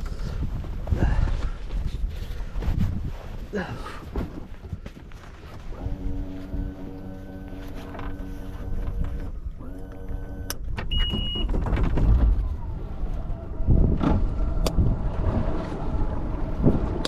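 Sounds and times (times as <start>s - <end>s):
wind buffeting microphone: 0.0s - 6.8s, 11.5s - 17.0s
outboard motor running: 5.7s - 10.5s
short high beep: 10.9s - 11.4s.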